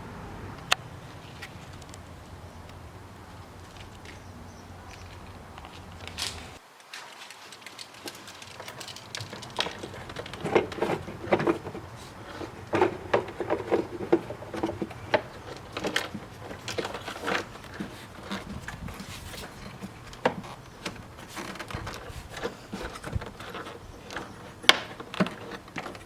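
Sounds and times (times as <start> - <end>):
hands clicking plastic housing: 7.7 - 26.0.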